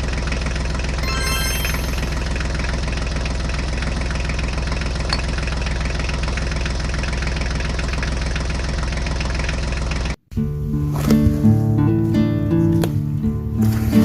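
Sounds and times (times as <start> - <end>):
tractor engine idling: 0.0 - 1.0, 2.3 - 10.2.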